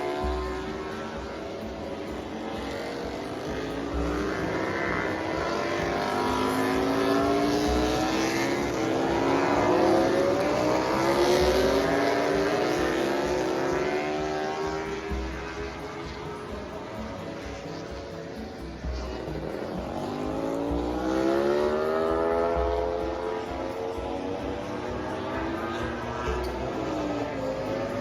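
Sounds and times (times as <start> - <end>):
racing motorcycles passing: 0.0 - 28.0.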